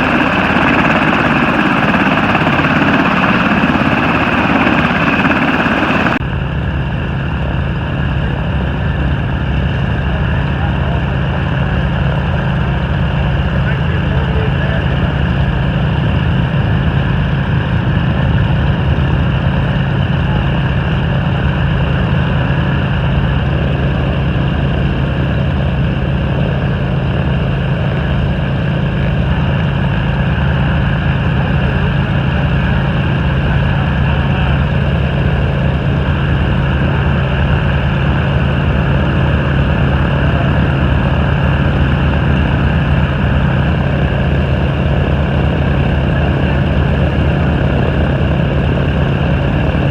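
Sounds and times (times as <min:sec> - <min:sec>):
helicopter rotor beat: 0:00.0 - 0:49.9
turboshaft engines humming: 0:00.0 - 0:49.9.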